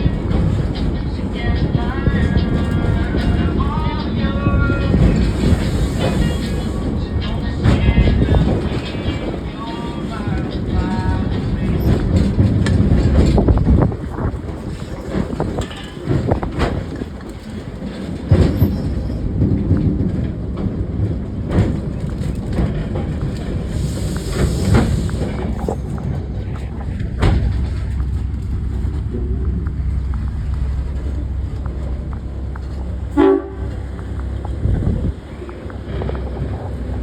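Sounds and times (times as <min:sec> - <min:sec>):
train rumbling on rails: 0:00.0 - 0:37.0
wheels clicking over rail joints: 0:00.0 - 0:37.0
train horn toot: 0:33.1 - 0:33.9.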